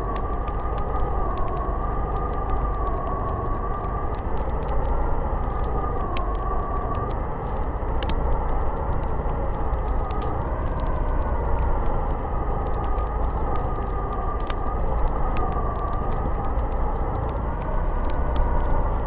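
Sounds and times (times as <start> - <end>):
small ticks and crackles: 0.0 - 19.0.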